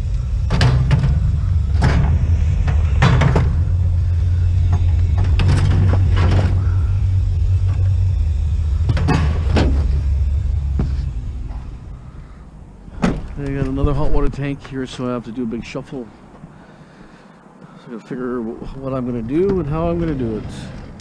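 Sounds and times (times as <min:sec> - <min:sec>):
knocks and rattles: 0:00.0 - 0:11.8
road and engine rumble: 0:00.0 - 0:21.0.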